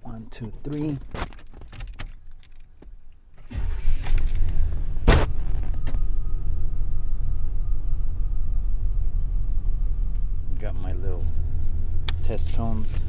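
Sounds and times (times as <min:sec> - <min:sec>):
car engine idling: 0:03.5 - 0:13.0.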